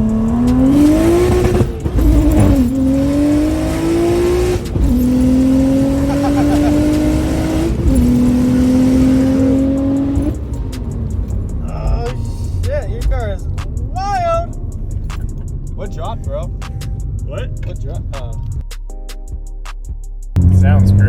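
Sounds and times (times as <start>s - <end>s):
car engine at full throttle: 0.0s - 12.5s, 20.4s - 21.0s.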